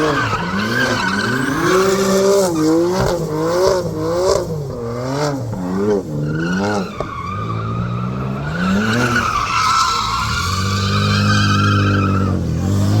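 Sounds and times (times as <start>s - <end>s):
car engine revving: 0.0s - 13.0s
tyres squealing: 6.3s - 12.8s.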